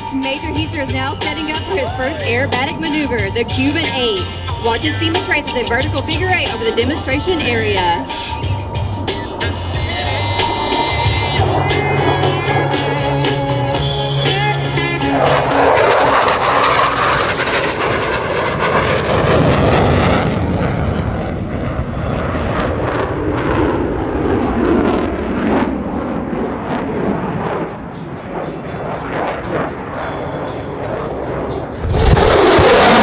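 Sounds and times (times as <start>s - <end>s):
jet engine rumble overhead: 0.0s - 33.0s.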